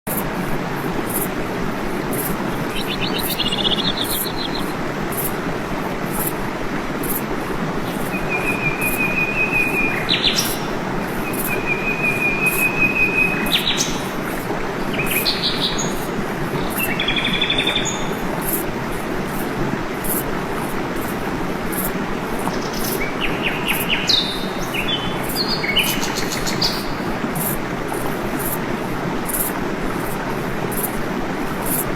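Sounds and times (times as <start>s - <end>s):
waterfall rushing: 0.2s - 31.9s
birds calling: 2.5s - 4.8s, 7.8s - 18.2s.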